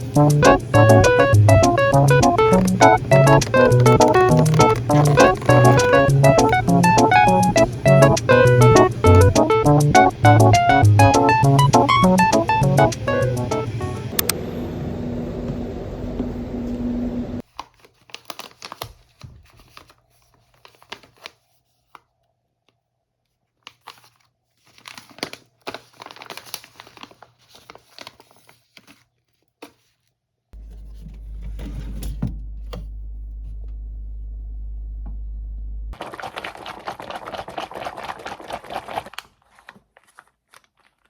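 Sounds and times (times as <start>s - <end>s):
music: 0.0s - 14.2s
clicks: 0.0s - 14.4s
crinkling and rustling objects: 0.4s - 8.8s, 17.4s - 32.8s, 36.0s - 41.0s
steady low hum: 30.6s - 36.0s.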